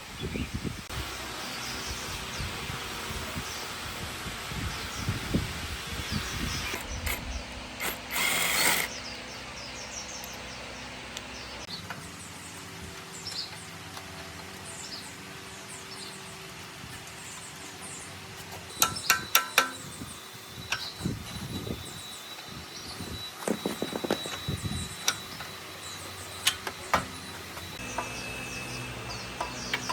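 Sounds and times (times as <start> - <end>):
sharp metallic clinks: 18.7 - 21.0.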